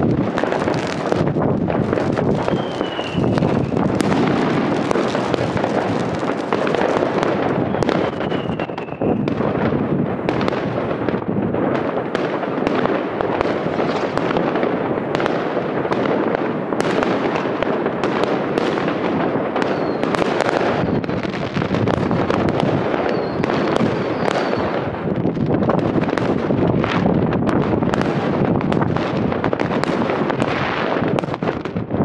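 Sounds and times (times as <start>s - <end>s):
fireworks bangs and crackles: 0.0s - 32.0s
firework whistles: 1.9s - 9.6s, 19.4s - 25.0s.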